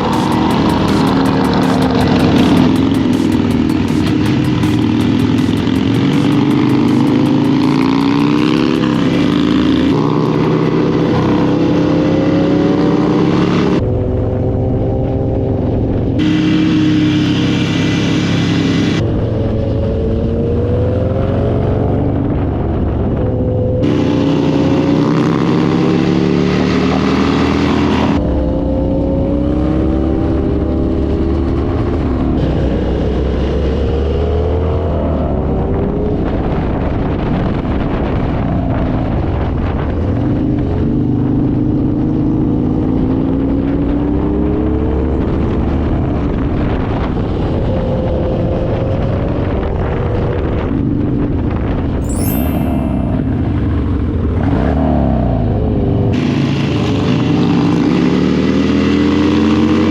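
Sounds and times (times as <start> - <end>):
wind rush: 0.0 - 12.2, 27.4 - 41.2, 43.1 - 57.4
motorcycle engine accelerating: 0.0 - 59.9.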